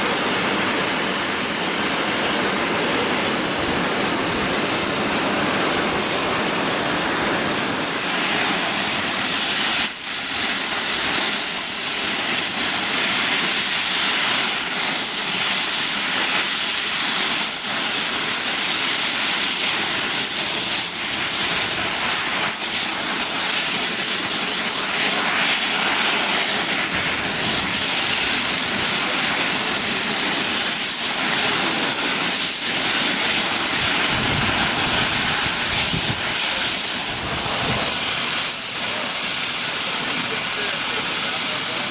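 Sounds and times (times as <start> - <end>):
steam locomotive venting steam: 0.0 - 41.9.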